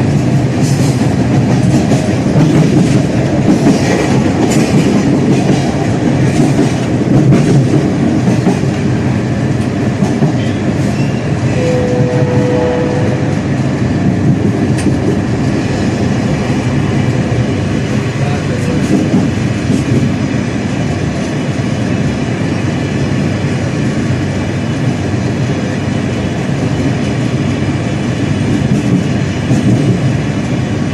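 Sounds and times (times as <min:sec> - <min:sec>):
train rumbling: 0:00.0 - 0:30.9
wheels clattering over rails: 0:00.3 - 0:08.8.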